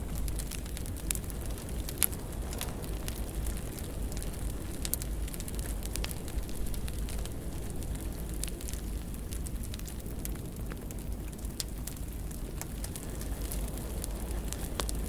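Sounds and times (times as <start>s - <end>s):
fire crackles and pops: 0.0s - 15.0s
low rumble of flames: 0.0s - 15.0s.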